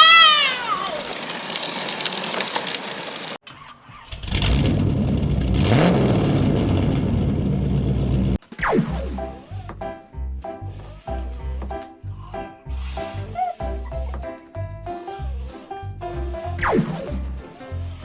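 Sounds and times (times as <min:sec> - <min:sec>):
monster truck engine revving: 0:00.0 - 0:08.4.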